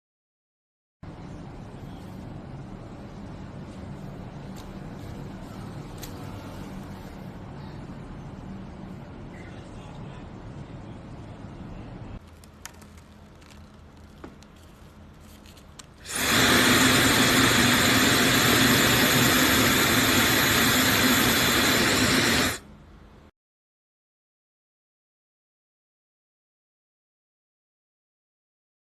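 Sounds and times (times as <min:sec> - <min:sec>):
quiet low hum: 0:01.0 - 0:16.1
hair dryer running: 0:16.0 - 0:22.6.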